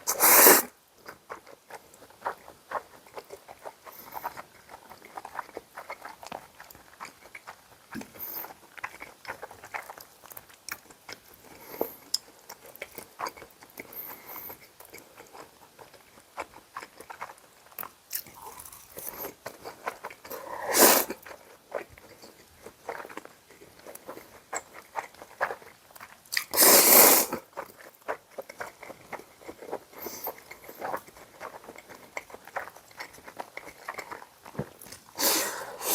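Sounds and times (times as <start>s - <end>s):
chewing and biting food: 0.0s - 35.9s
wet mouth clicks: 17.2s - 21.4s.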